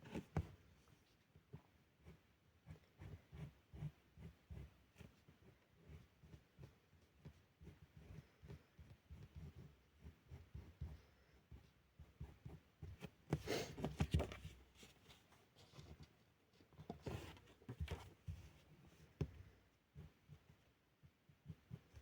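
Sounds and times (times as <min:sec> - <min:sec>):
felt-tip pen scratching on paper: 0:02.0 - 0:13.7
soft pen taps: 0:19.1 - 0:19.5.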